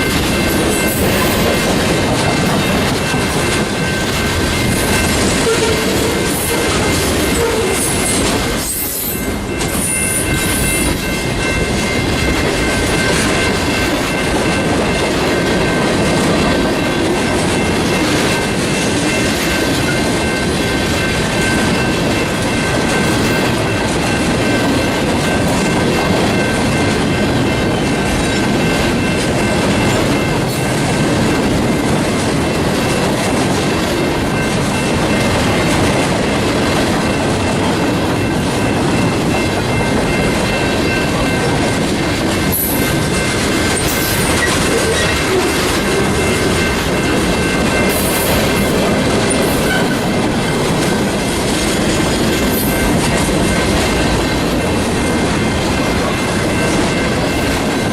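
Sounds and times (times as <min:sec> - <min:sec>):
train wheels clickety-clack: 0:00.0 - 0:57.9.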